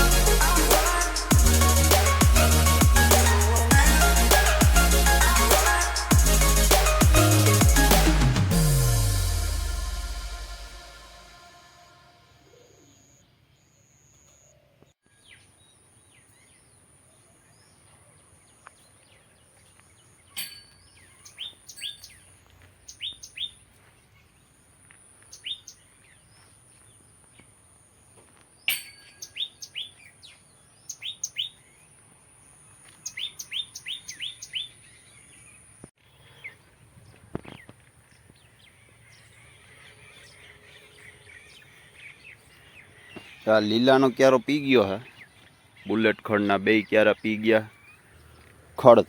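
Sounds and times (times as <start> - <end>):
faint high-pitched tone: 8.8 - 14.6
birds chirping: 12.4 - 27.6, 28.5 - 49.0.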